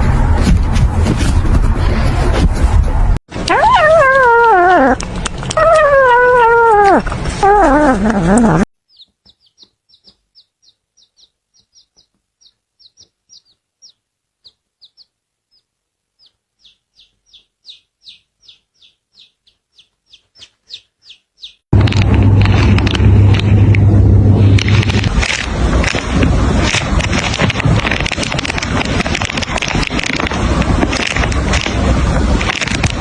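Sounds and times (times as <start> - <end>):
dog howling: 3.4 - 5.0, 5.6 - 8.5
high bird peeps: 8.9 - 21.6
noisy rush with low hum: 21.7 - 33.0.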